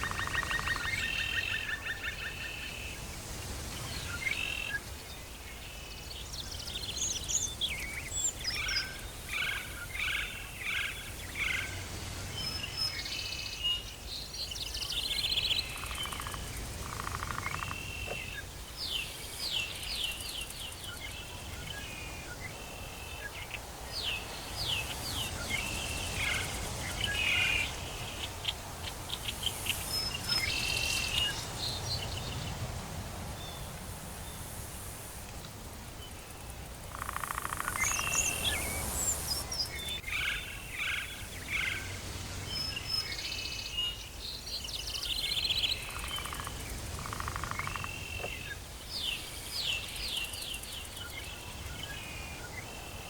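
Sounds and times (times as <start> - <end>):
birds chirping and whistling: 37.8 - 40.3.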